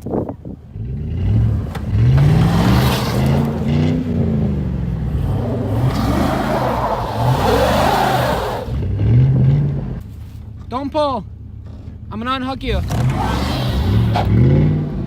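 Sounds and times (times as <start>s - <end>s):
truck engine revving hard: 0.8s - 10.0s, 12.8s - 15.0s.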